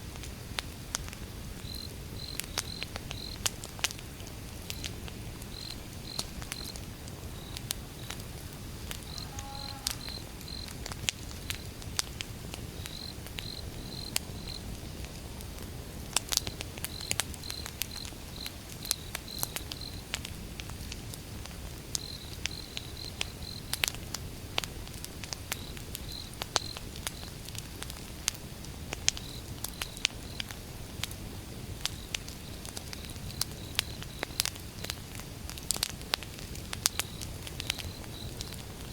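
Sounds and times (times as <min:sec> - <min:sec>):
wood fire crackling: 0:00.0 - 0:38.9
crickets chirping: 0:01.6 - 0:03.5, 0:04.7 - 0:11.8, 0:12.7 - 0:15.0, 0:16.9 - 0:20.1, 0:22.0 - 0:23.7, 0:31.9 - 0:35.0, 0:36.9 - 0:38.7.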